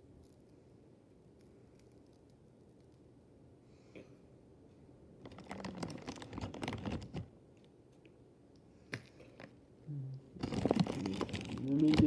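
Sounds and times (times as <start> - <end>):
chewing crunchy snack: 10.4 - 12.0.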